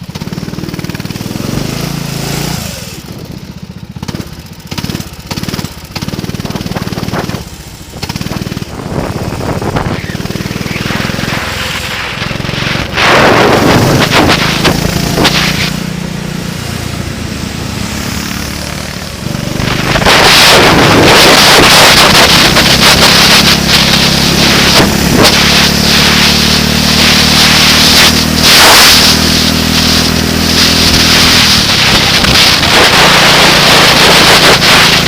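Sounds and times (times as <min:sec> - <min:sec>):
engine running: 0:00.0 - 0:35.0
wind buffeting microphone: 0:06.3 - 0:15.8.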